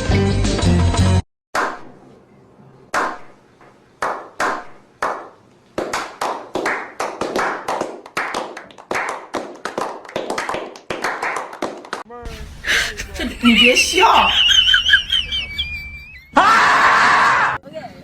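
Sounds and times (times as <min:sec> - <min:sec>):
sharp smacking strikes: 0:01.6 - 0:02.0, 0:02.9 - 0:03.4, 0:04.0 - 0:08.4.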